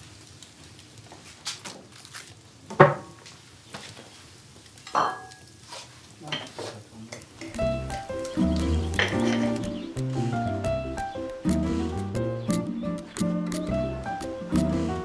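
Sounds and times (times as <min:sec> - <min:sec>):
metal utensils clinking on pan: 0:04.9 - 0:05.6, 0:06.2 - 0:09.7.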